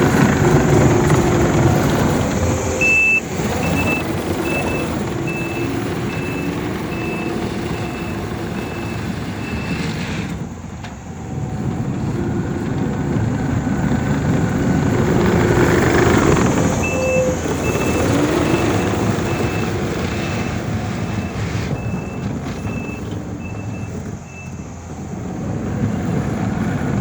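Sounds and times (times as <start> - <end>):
track loader engine running: 0.0 - 27.0
backup alarm beeping: 0.6 - 9.8, 15.8 - 20.6.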